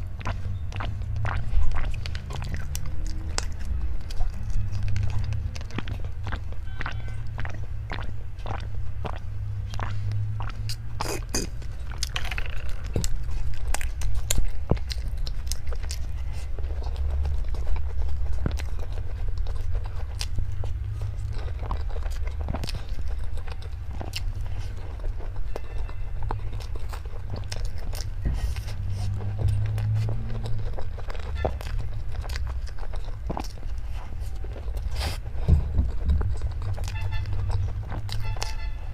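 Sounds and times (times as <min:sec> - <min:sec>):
person chewing crunchy food: 0:00.0 - 0:38.9
low rumble: 0:26.2 - 0:38.2.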